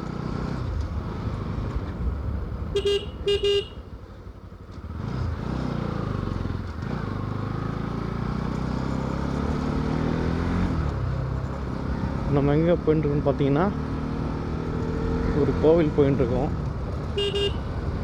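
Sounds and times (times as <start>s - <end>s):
motorcycle engine running: 0.0s - 18.0s
short horn beeps: 2.7s - 3.9s, 17.2s - 17.8s.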